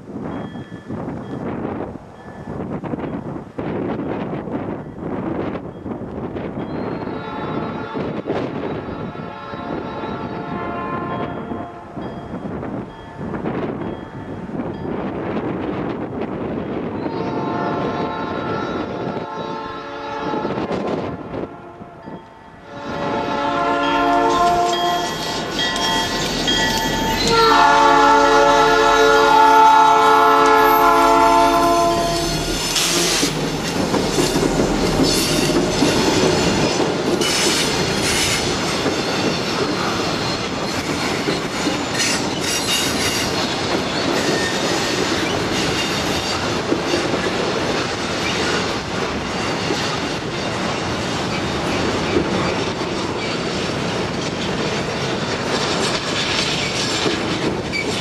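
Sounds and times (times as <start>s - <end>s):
locomotive air horn: 7.0s - 12.0s, 17.0s - 26.2s, 27.2s - 33.5s
wheels clattering over rail joints: 32.6s - 58.0s.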